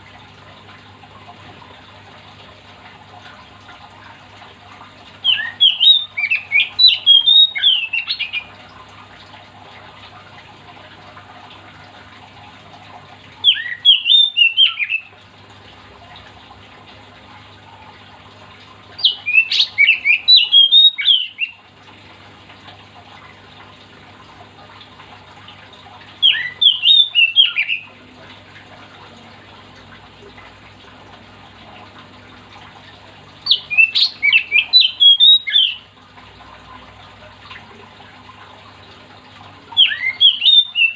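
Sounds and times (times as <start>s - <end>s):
bird singing whistling phrases: 5.2s - 8.5s, 13.4s - 15.1s, 19.0s - 21.6s, 26.2s - 28.0s, 33.5s - 35.8s, 39.8s - 40.9s.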